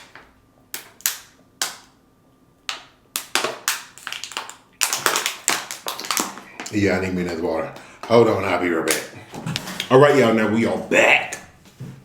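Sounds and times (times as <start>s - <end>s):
sharp clicks and smacks: 0.0s - 2.0s, 2.6s - 6.8s.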